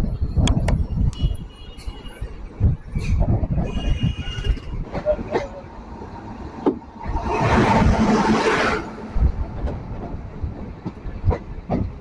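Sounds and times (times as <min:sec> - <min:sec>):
train running along track: 0:00.0 - 0:12.0
loud rush of noise: 0:06.8 - 0:10.3
wheels thumping over rail joints: 0:09.1 - 0:12.0.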